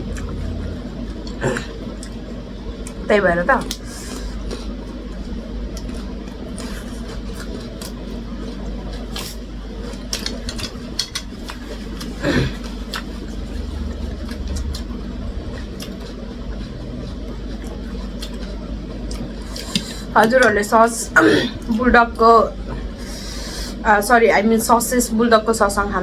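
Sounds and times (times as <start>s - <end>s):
steady low hum: 0.0s - 26.0s
chewing and mouth clicks: 5.7s - 20.4s.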